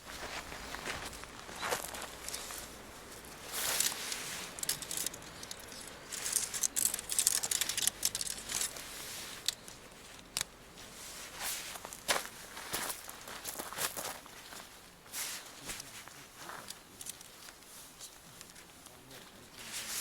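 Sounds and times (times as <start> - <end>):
rustling: 0.0 - 20.0
clicks and light rattles: 1.0 - 10.5, 16.5 - 19.4.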